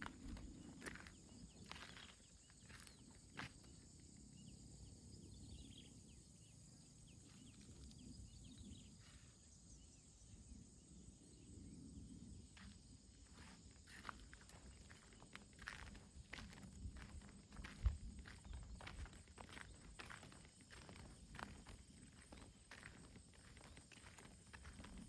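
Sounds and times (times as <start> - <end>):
soft footsteps: 12.6 - 25.0.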